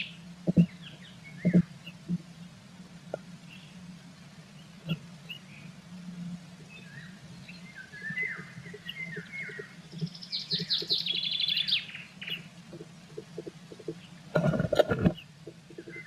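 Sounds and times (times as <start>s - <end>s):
small songbird singing: 0.0s - 2.2s, 6.6s - 12.5s, 15.2s - 16.0s.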